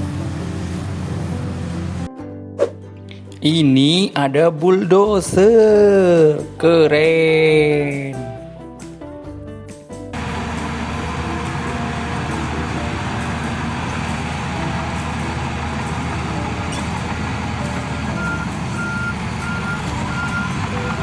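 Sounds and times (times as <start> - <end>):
short reversing beeps: 18.2 - 21.0.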